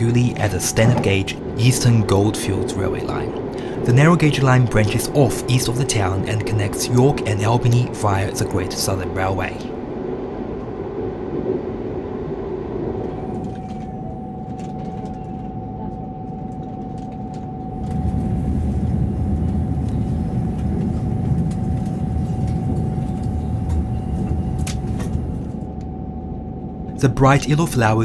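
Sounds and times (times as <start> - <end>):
train rumbling on track: 0.0 - 10.4, 17.6 - 25.8
mid-pitched whine: 0.0 - 28.0.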